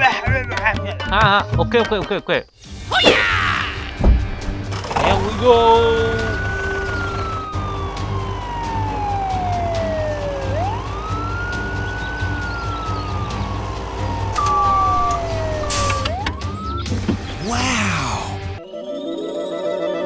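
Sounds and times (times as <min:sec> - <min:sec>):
siren wailing: 0:05.0 - 0:18.4.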